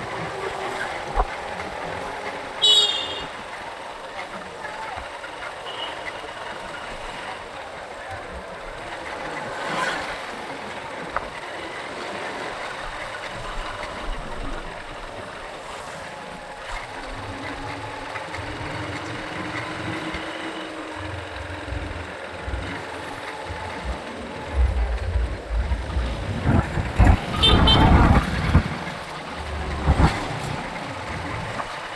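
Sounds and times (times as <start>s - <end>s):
road and traffic noise: 0.0s - 31.9s
low irregular rumbling: 16.4s - 31.9s.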